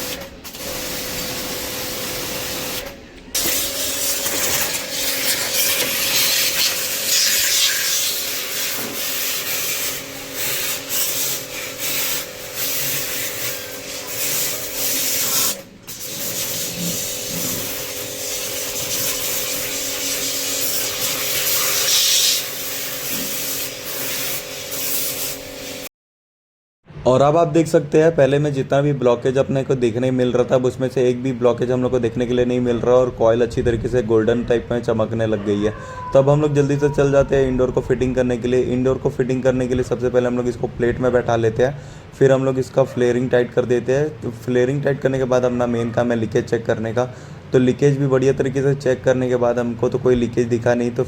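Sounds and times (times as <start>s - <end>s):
pressure washer pump humming: 0.0s - 25.9s
water jet hissing: 0.0s - 25.9s.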